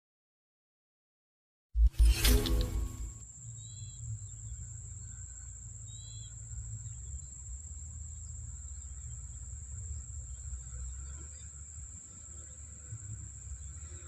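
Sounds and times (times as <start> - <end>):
crickets droning: 3.2 - 14.0.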